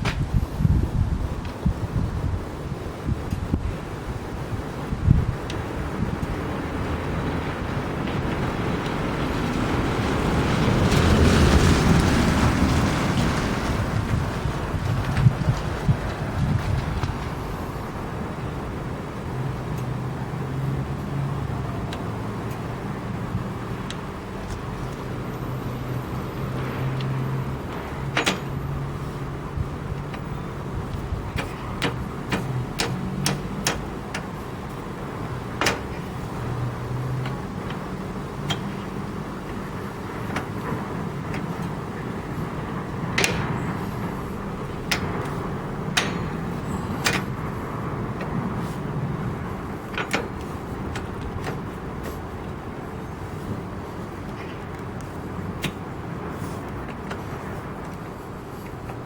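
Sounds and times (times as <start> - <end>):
tractor engine running: 0.0 - 59.0
loose metal parts clanking: 25.8 - 59.0.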